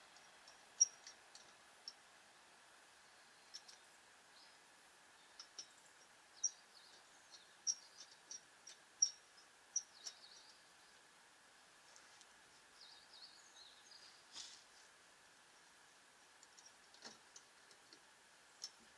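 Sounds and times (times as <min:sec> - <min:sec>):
faint background hiss: 0:00.0 - 0:18.9
small birds chirping: 0:03.0 - 0:11.1, 0:12.7 - 0:14.6.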